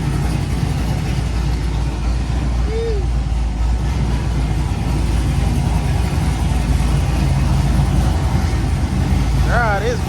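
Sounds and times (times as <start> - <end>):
v-eight engine idling: 0.0 - 10.0.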